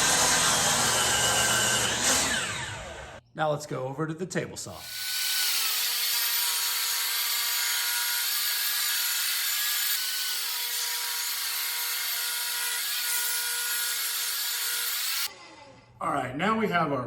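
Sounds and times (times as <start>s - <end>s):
table saw ripping wood: 0.0s - 3.2s, 4.8s - 15.3s.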